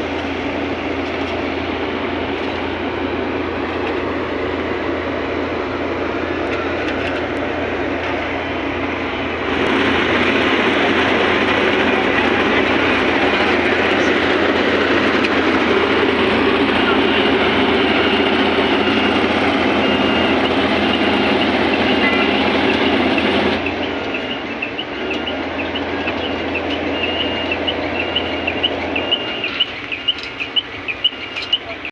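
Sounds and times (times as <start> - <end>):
engine and machinery noise: 0.0 - 31.9.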